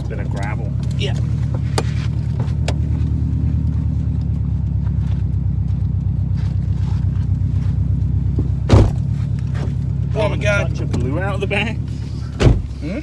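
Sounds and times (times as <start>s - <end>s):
car engine running with pulsing rumble: 0.0s - 13.0s
sharp thump: 8.6s - 9.1s, 12.4s - 12.8s.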